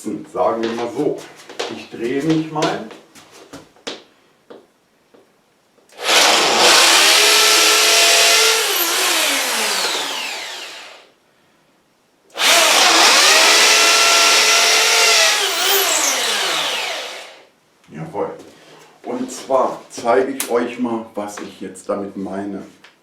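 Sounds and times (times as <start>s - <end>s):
drill motor winding down whine: 6.0s - 11.1s, 12.4s - 17.5s
hammer drill boring into wall: 6.0s - 11.1s, 12.4s - 17.5s.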